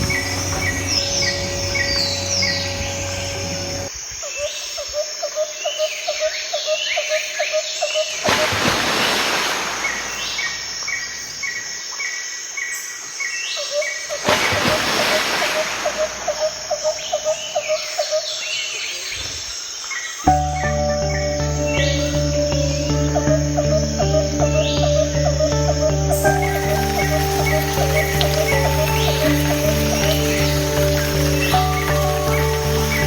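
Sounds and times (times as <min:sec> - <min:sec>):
birds chirping: 0:00.0 - 0:03.9, 0:12.6 - 0:33.0
rhythmic low chirps: 0:00.0 - 0:03.9, 0:20.3 - 0:33.0
insect trill: 0:00.0 - 0:04.9, 0:06.6 - 0:33.0.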